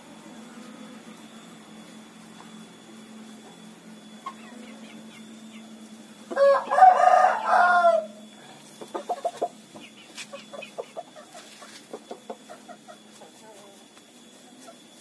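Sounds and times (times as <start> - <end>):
chicken clucking: 4.2 - 5.7, 6.3 - 13.8
rooster crowing: 6.3 - 8.3.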